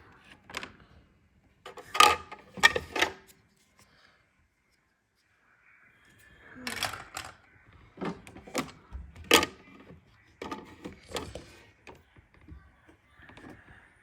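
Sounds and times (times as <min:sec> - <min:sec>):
plastic toy clicks and knocks: 0:06.6 - 0:07.4.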